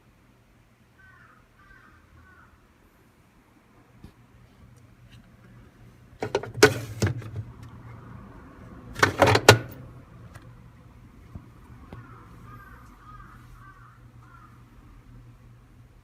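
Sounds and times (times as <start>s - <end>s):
washing machine lid and parts knocking: 6.2s - 7.5s, 9.0s - 9.8s.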